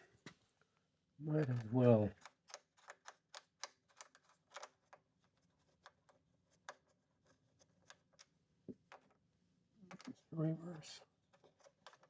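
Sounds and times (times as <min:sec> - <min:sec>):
antenna clicks and scrapes: 0:02.2 - 0:07.0.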